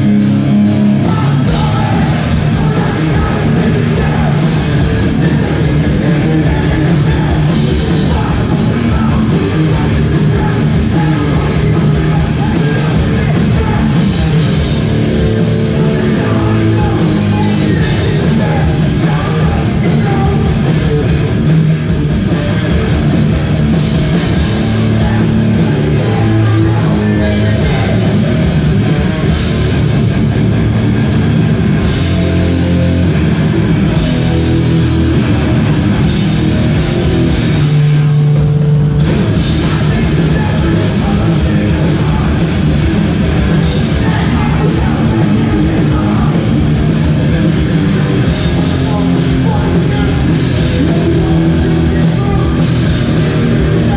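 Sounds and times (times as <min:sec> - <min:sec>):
distorted guitars: 0:00.0 - 0:53.9
drums: 0:00.0 - 0:53.9
shouted vocals: 0:01.0 - 0:14.5.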